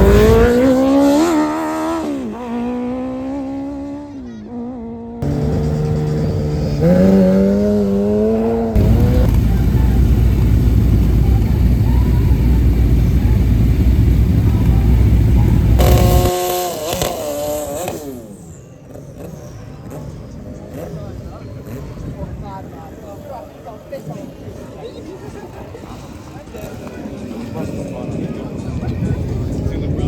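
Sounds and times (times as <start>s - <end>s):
race engines revving: 0.0s - 22.4s.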